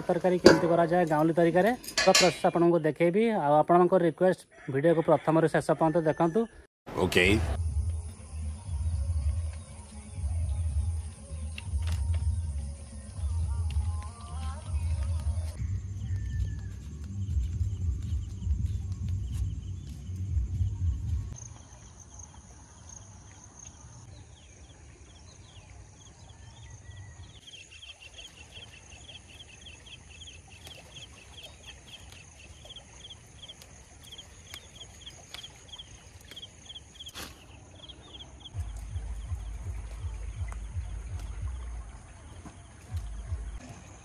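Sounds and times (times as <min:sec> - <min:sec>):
low rumble: 0:38.6 - 0:42.3.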